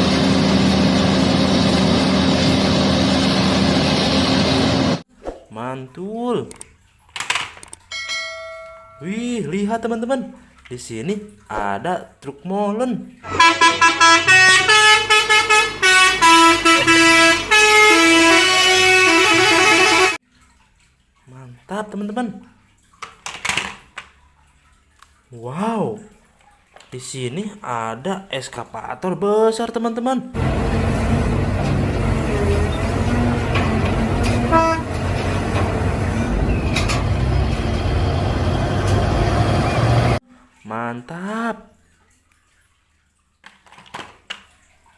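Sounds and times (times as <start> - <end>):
buzzy horn melody: 13.2 - 20.2, 30.4 - 36.5
vehicle engine rumble: 30.4 - 40.2.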